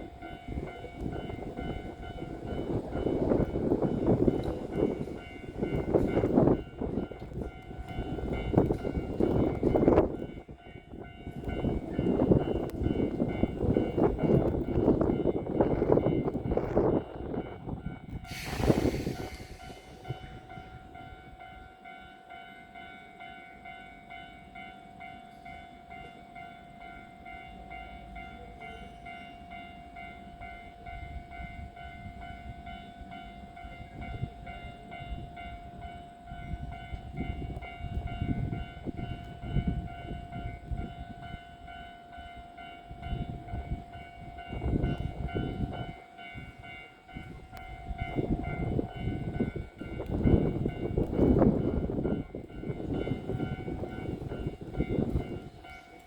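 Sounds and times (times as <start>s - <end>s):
electric train whine: 0.0s - 56.0s
burst of hiss: 18.3s - 20.4s.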